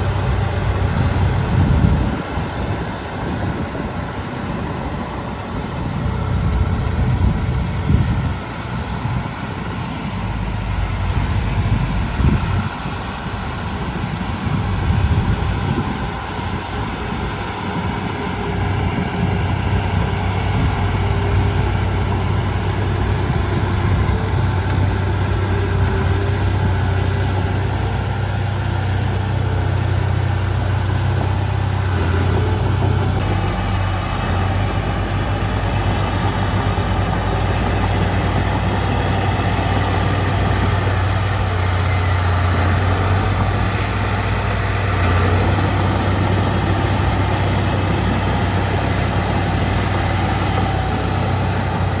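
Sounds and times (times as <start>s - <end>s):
heavy diesel machinery engine drone: 0.0s - 52.0s.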